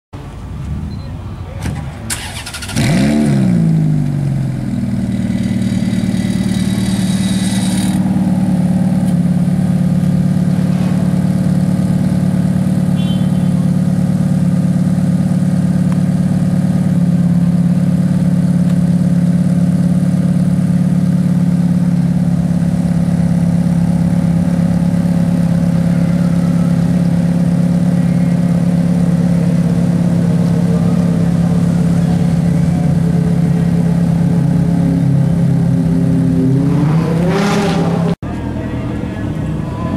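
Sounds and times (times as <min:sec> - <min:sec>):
car engine idling: 0:00.2 - 0:39.9
engine cranking and starting: 0:01.7 - 0:03.2.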